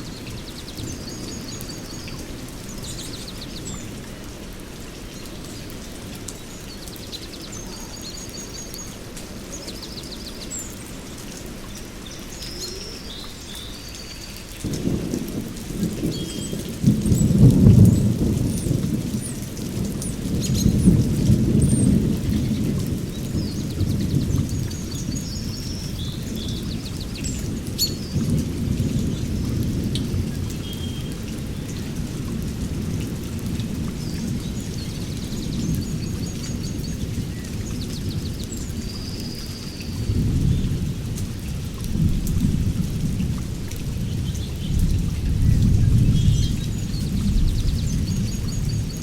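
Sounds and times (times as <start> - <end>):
rain: 0.0 - 49.0
thunder rumbling: 14.6 - 38.4, 39.1 - 49.0.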